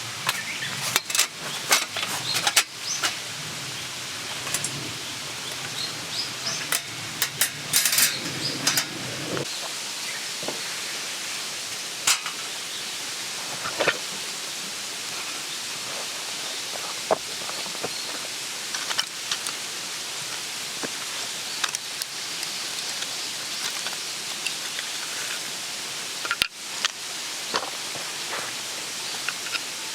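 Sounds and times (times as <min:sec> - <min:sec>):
knocks and rustling of gear: 0:00.2 - 0:03.2.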